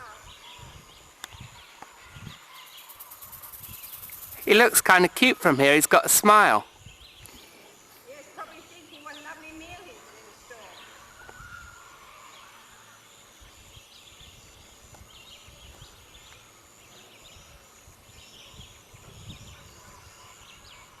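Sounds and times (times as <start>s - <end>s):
faint bird chirps: 0.0s - 4.6s.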